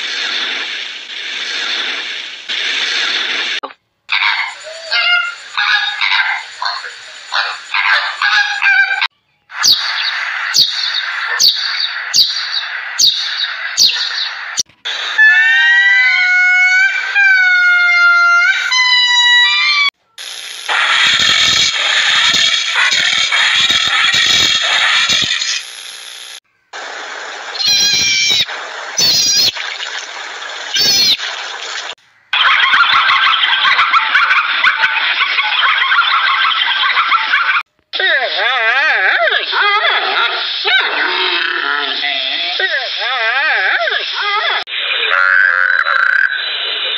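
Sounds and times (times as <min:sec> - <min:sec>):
flamingos honking: 0:04.1 - 0:09.1
high animal calls: 0:04.1 - 0:14.2, 0:15.0 - 0:19.9, 0:27.6 - 0:29.8, 0:30.7 - 0:31.3
loud sharp chirp: 0:09.5 - 0:14.7
sparrows chirping: 0:09.6 - 0:14.4.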